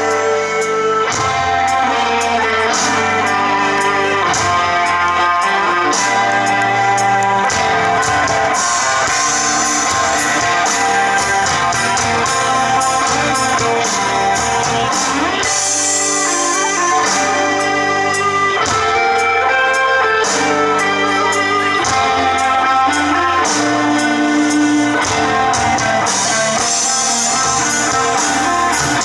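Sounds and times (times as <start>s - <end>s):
electric guitars: 0.0s - 29.0s
live rock band playing: 0.0s - 29.0s.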